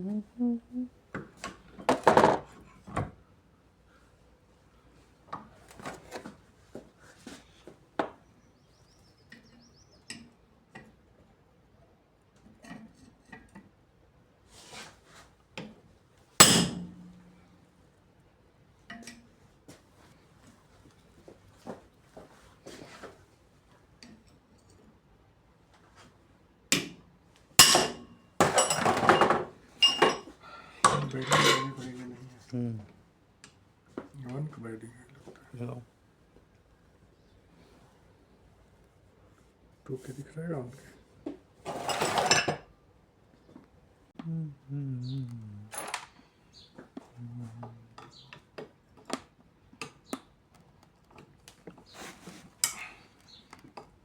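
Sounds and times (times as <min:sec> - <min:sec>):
sharp metal knocks with ringing: 0:16.4 - 0:17.3, 0:27.6 - 0:28.0.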